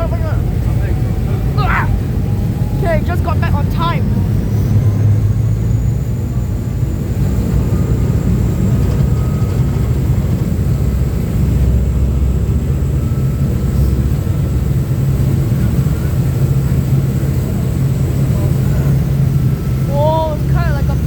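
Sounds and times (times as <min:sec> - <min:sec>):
boat engines rumbling: 0:00.0 - 0:21.0.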